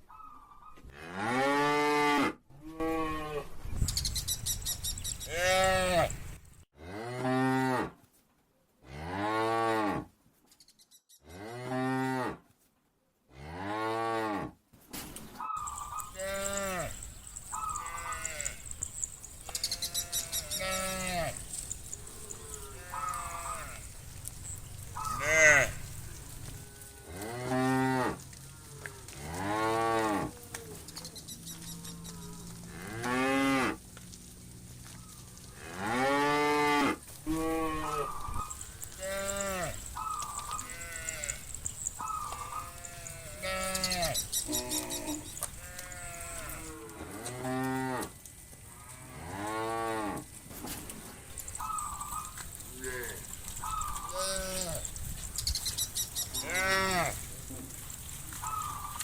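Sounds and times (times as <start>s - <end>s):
cattle mooing: 5.3s - 6.2s, 15.6s - 28.2s, 35.6s - 48.1s, 56.4s - 57.3s.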